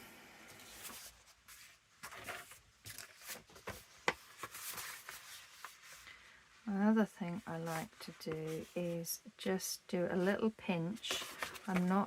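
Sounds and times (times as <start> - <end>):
paper pages rustling: 0.6 - 6.3, 7.4 - 9.0, 10.9 - 12.0.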